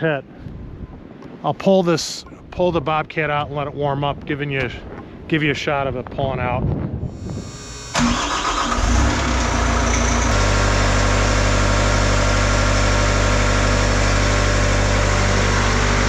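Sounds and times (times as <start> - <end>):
diesel engine idling: 7.8 - 16.0.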